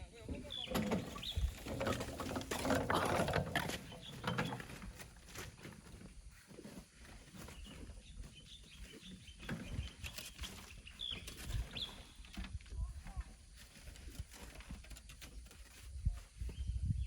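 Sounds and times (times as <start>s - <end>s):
bird chirps: 0.3s - 1.8s, 7.3s - 12.4s.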